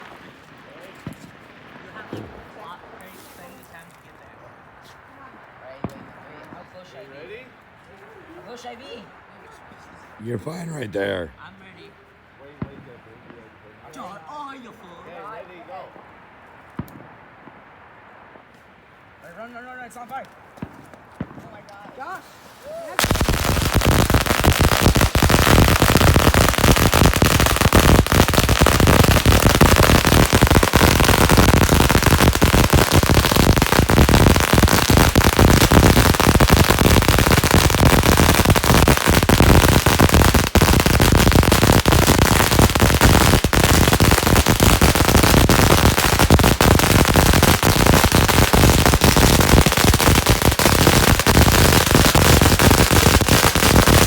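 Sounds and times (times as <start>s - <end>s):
firecrackers crackling: 0.0s - 4.3s, 10.2s - 11.3s, 16.6s - 18.5s, 20.2s - 54.0s.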